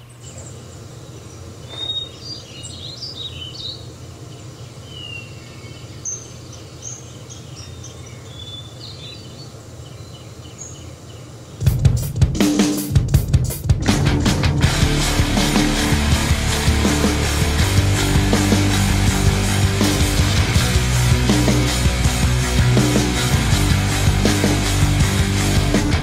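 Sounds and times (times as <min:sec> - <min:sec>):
birds chirping: 0:00.0 - 0:11.9
steady low hum: 0:13.9 - 0:26.0.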